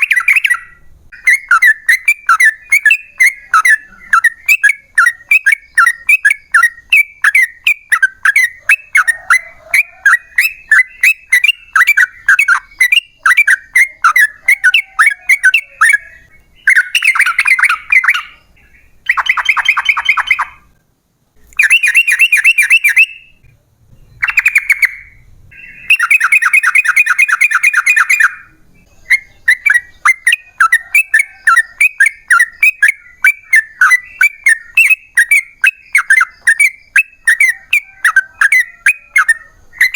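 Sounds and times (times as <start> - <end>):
bird chattering: 0.0 - 20.8, 21.4 - 39.9
bird rapid trills: 0.0 - 20.8, 21.6 - 23.4, 24.2 - 28.5.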